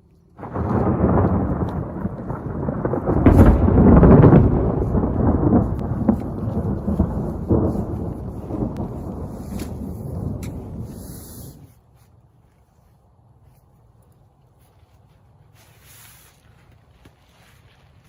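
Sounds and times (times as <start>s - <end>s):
thunder rolling: 0.4s - 11.7s.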